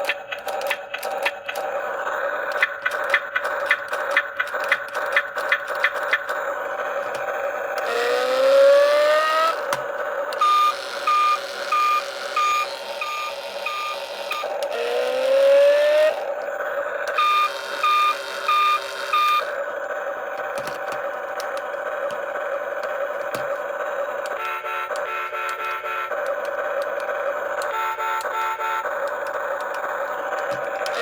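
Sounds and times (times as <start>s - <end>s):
steady electronic hum: 0.0s - 31.0s
electronic beeps: 10.4s - 14.5s, 17.1s - 19.5s.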